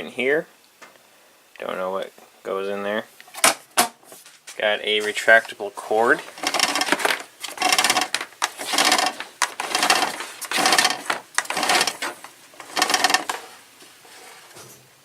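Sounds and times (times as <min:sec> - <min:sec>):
vacuum cord reel ticking: 0:06.2 - 0:13.5.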